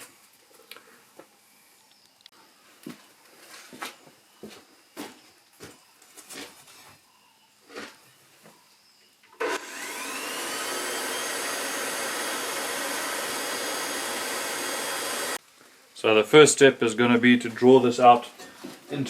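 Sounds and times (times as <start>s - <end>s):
electric blower whining and rushing air: 9.4s - 15.4s.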